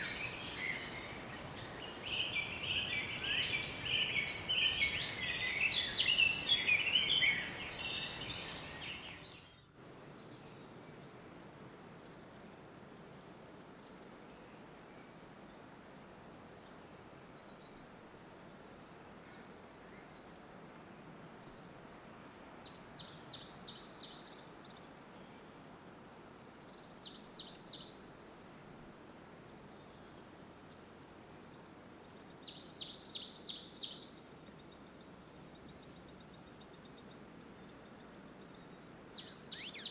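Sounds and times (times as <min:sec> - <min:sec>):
songbirds chirping: 0:00.0 - 0:28.2, 0:29.4 - 0:39.9
faint steady hiss: 0:00.0 - 0:39.9.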